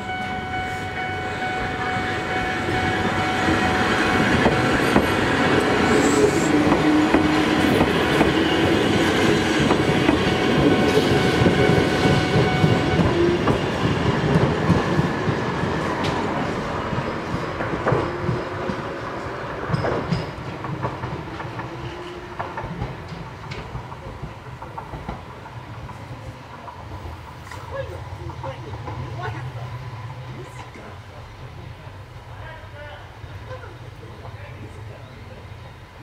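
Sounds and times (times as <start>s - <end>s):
steady high tone: 0.0s - 7.2s
train wheels clattering over rail joints: 6.5s - 27.7s.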